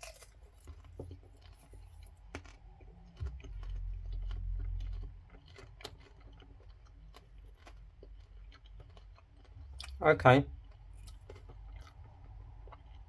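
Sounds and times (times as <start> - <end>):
person chewing popcorn: 0.0 - 13.0
deep low rumble: 2.6 - 5.9.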